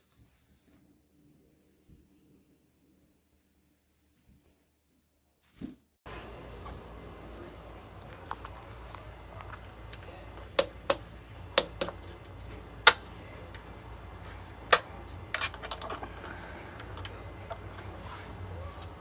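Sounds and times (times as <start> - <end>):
hard objects clicking and knocking: 8.2 - 13.6, 14.6 - 17.9.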